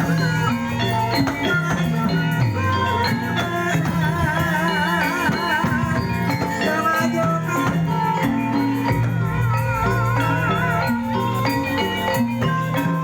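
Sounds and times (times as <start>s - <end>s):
gamelan music: 0.0s - 13.0s
wavering melody line: 0.0s - 13.0s.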